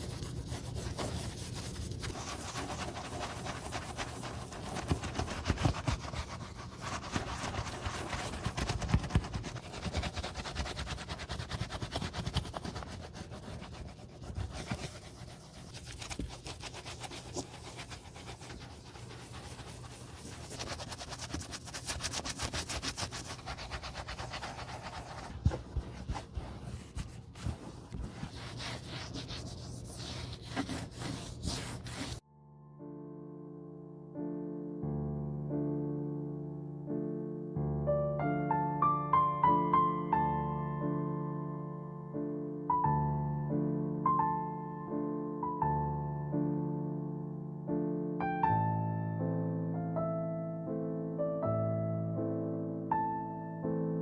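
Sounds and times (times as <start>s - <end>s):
brush scrubbing boot leather: 0.0s - 32.2s.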